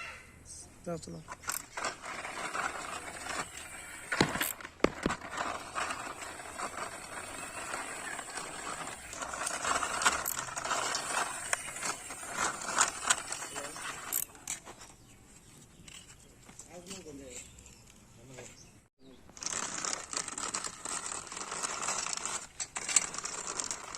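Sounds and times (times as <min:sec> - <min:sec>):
toy car rolling and rattling: 0:01.2 - 0:14.9, 0:19.3 - 0:23.9.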